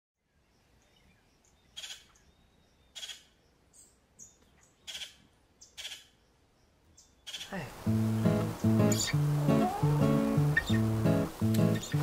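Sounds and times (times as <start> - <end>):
bird calling: 6.9 - 12.0
faint bird chirps: 8.5 - 10.9.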